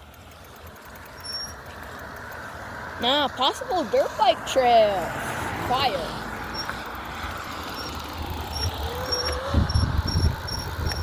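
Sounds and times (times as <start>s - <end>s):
wind buffeting microphone: 7.3s - 11.0s.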